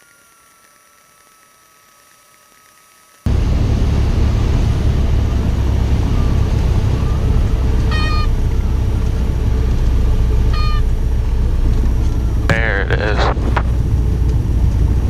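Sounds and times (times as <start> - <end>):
aircraft engine drone: 0.0 - 15.0
stall warning horn squealing: 4.8 - 13.7.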